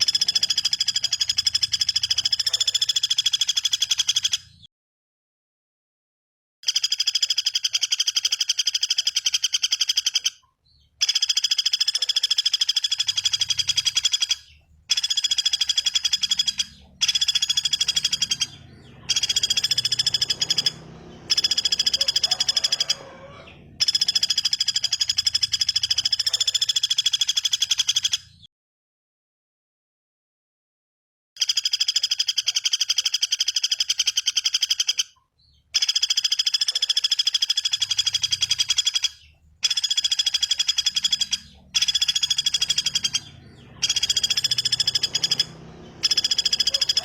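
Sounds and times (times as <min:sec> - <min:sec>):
songbird giving fast dry trills: 0:11.0 - 0:28.3, 0:35.8 - 0:47.0.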